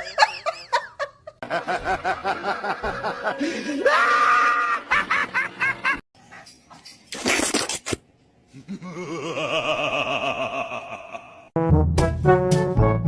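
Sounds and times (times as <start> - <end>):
person laughing hard: 0.0 - 6.0, 8.6 - 11.5
person shrieking: 3.6 - 4.8.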